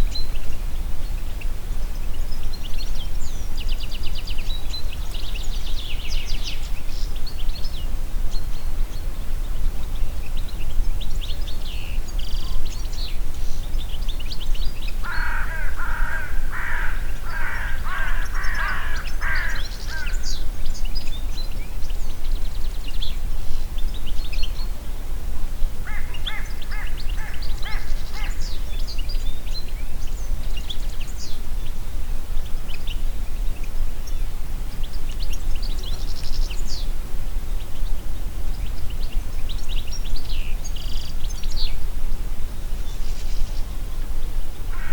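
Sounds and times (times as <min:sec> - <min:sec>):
small birds chirping: 0:00.0 - 0:24.9, 0:25.9 - 0:31.8
bird harsh repeated calls: 0:15.0 - 0:20.3, 0:25.9 - 0:28.6.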